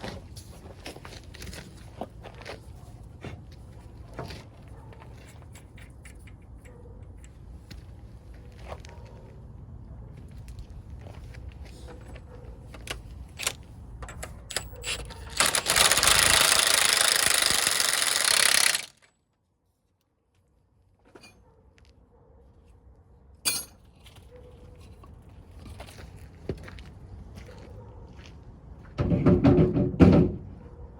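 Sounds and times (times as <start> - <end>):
impact wrench running: 14.5 - 19.1.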